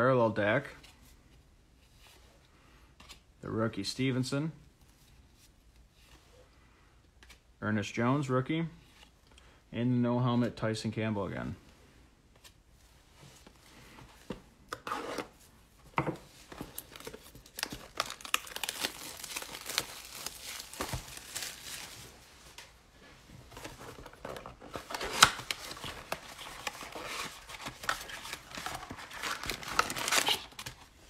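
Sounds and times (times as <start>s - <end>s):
foil wrapper crinkling: 16.7s - 22.1s, 24.2s - 30.9s
foil wrapper ripping: 17.4s - 21.9s, 28.8s - 30.8s.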